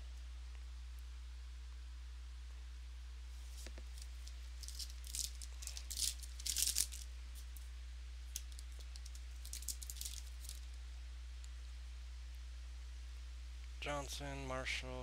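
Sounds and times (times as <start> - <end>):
steady low hum: 0.0 - 15.0
cards clicking and rustling: 3.5 - 7.7, 8.3 - 10.7.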